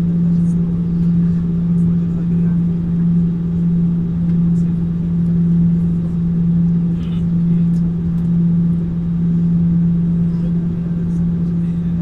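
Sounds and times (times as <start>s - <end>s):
jet airliner cabin drone: 0.0s - 12.0s.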